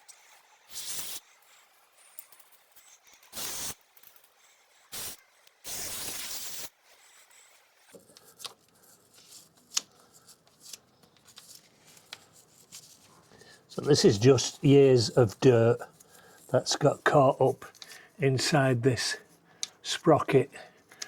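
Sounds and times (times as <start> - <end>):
aerosol spray hissing: 0.7 - 1.2, 3.4 - 3.8, 5.0 - 6.7.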